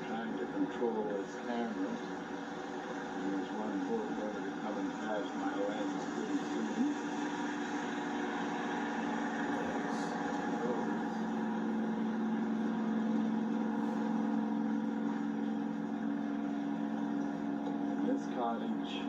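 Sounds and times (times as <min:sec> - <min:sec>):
motorboat engine running: 0:00.0 - 0:19.0.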